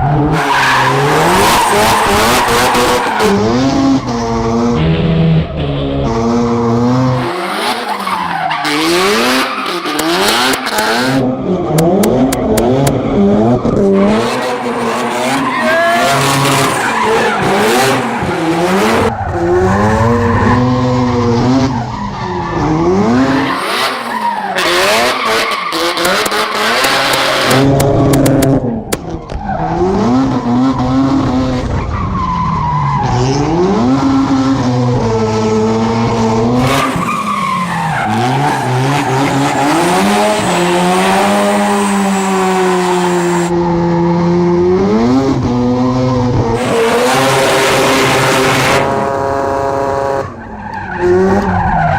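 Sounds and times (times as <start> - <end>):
tyres squealing and skidding: 0.0 - 11.2, 13.0 - 27.7, 28.8 - 33.6, 35.6 - 43.8, 45.7 - 51.9
rotary engine revving hard: 6.0 - 28.7, 33.0 - 50.4.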